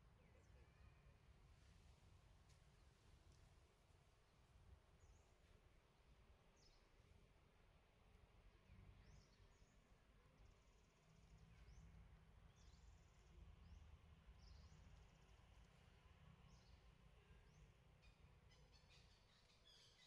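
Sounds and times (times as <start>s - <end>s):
faint high bird calls: 0.2s - 1.2s, 16.6s - 20.0s.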